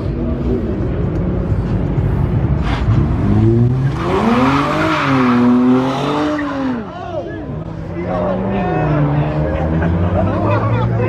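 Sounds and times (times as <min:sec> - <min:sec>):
car engine revving hard: 0:03.0 - 0:06.8.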